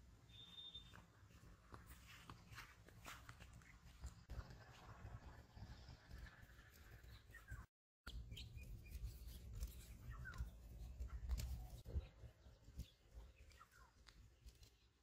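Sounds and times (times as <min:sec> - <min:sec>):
faint bird chirps: 0:00.3 - 0:01.0.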